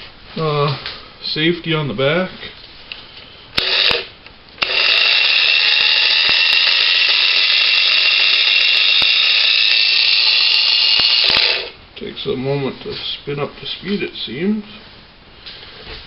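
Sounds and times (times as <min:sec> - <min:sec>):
angle grinder high-pitched whine: 0:03.6 - 0:11.8.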